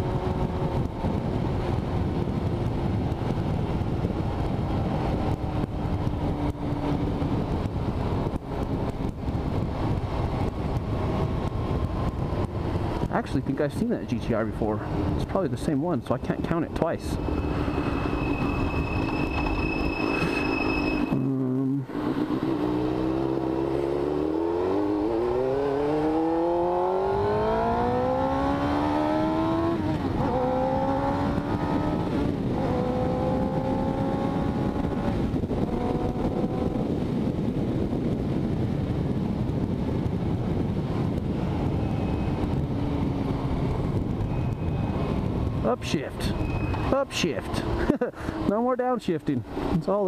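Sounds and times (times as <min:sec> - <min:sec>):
motorcycle engine accelerating: 0:00.0 - 0:13.1, 0:21.1 - 0:45.7
wind noise: 0:00.0 - 0:50.0.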